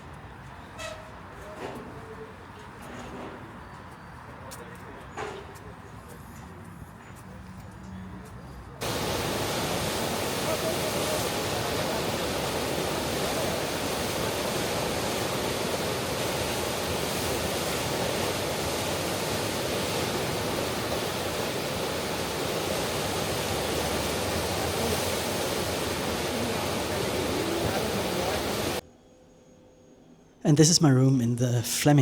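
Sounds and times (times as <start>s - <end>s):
steady rushing noise: 8.8s - 28.8s.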